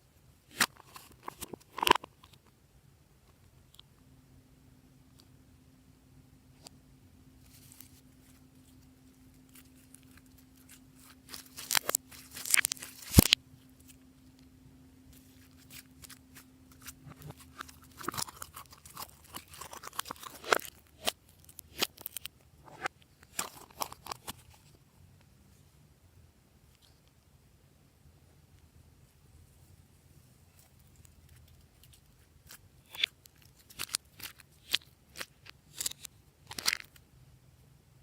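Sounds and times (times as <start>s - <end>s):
slime clicking and crackling: 9.7s - 13.4s, 15.4s - 22.3s.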